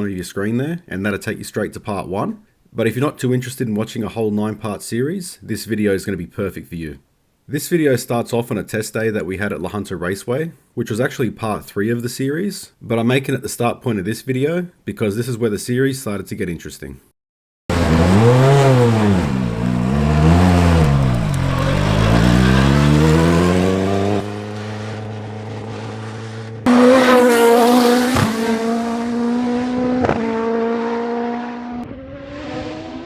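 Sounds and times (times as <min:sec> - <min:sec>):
race car engine revving: 0:17.7 - 0:33.0.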